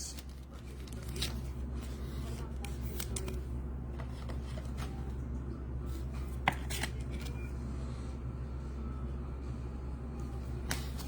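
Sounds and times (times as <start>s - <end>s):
trading cards rustling: 0.0s - 5.2s, 6.0s - 7.4s
low steady hum: 0.0s - 11.0s.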